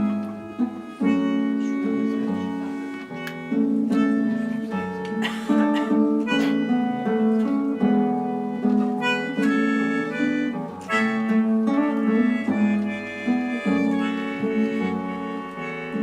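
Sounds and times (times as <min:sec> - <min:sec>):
guitar notes: 0:00.0 - 0:16.0
reedy melody line: 0:00.0 - 0:16.0.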